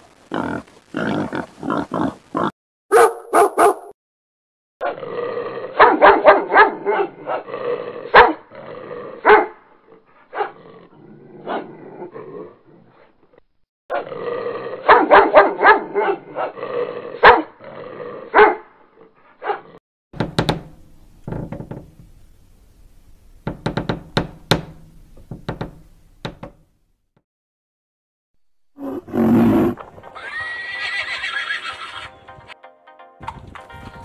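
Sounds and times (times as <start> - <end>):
puppy yapping and growling: 5.7 - 8.4, 9.1 - 9.6
horse whinnying: 28.8 - 32.2.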